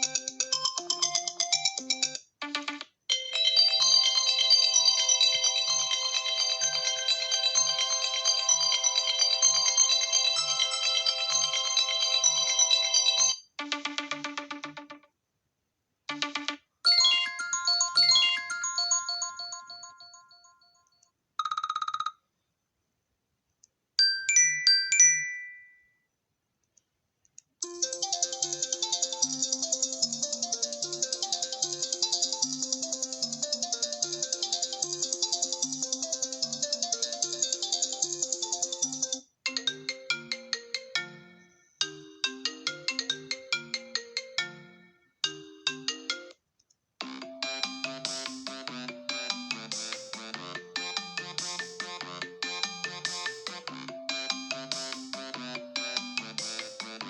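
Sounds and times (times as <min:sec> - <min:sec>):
rapidly repeating ringtone tune: 0:00.0 - 0:15.1, 0:16.1 - 0:20.8, 0:21.4 - 0:22.2, 0:27.6 - 0:46.4, 0:47.0 - 0:57.0
dense bright phone ringtone: 0:16.1 - 0:20.8
bell-like chime melody: 0:16.9 - 0:21.0, 0:24.0 - 0:26.1, 0:39.6 - 0:46.3.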